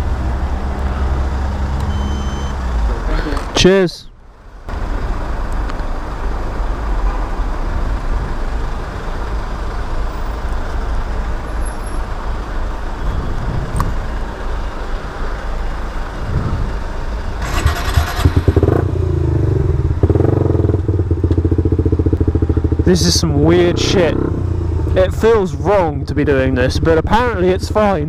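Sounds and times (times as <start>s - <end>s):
motorcycle engine running: 17.4s - 28.0s.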